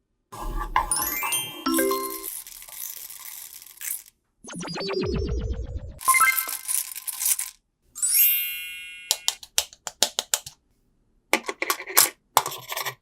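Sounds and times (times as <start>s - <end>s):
bright chime ringing: 0.9s - 2.4s
small object clicking and rattling: 2.1s - 4.2s, 6.0s - 7.6s.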